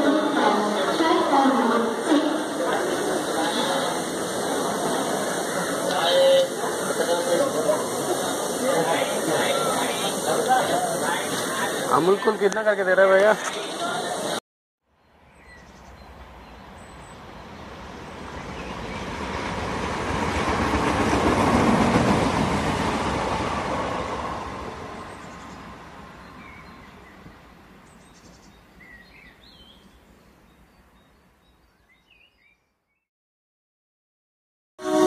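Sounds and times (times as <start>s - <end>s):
passenger train passing: 0.0s - 14.4s, 15.7s - 28.5s, 34.8s - 35.0s.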